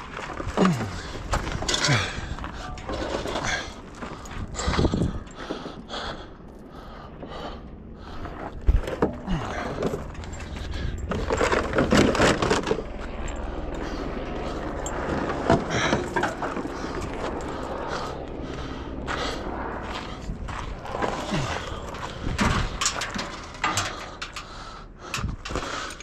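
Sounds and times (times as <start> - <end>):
metal clanks and scraping: 0.0 - 5.6, 8.2 - 17.4, 20.5 - 26.0
low steady rumble: 0.0 - 26.0.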